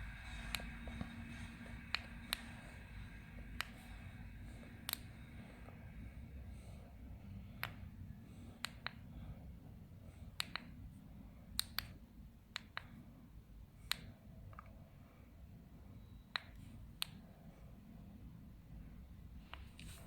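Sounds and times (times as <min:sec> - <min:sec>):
low steady rumble: 0:00.0 - 0:20.0
sharp clicks or light taps: 0:03.5 - 0:03.9, 0:04.8 - 0:05.8, 0:07.6 - 0:07.8, 0:08.6 - 0:09.0, 0:10.4 - 0:10.7, 0:11.6 - 0:12.9, 0:16.3 - 0:17.2.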